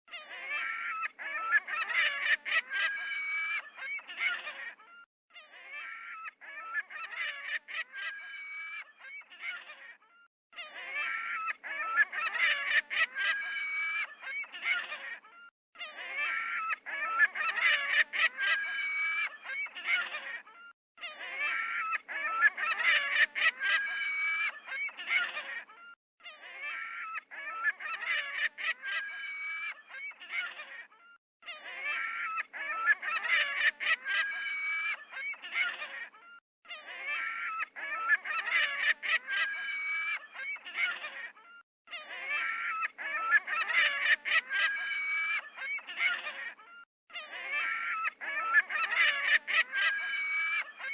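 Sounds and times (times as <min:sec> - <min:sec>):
geese honking: 0:00.4 - 0:04.7.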